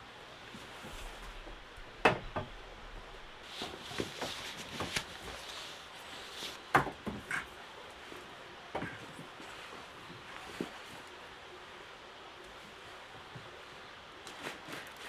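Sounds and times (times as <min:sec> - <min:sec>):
steady background hiss: 0:00.0 - 0:15.0
sharp knocks and clicks: 0:01.4 - 0:03.4.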